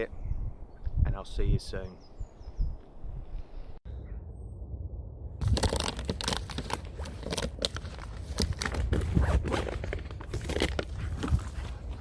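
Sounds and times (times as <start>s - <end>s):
steady low rumble: 3.8s - 7.0s
crackling and crunching: 5.4s - 12.0s.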